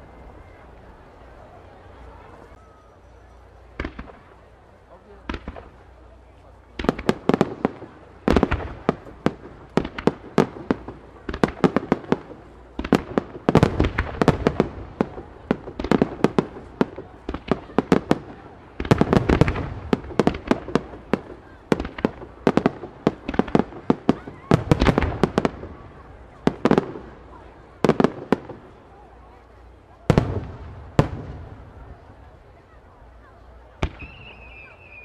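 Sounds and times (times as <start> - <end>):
fireworks bangs: 3.7 - 32.7, 33.4 - 35.0.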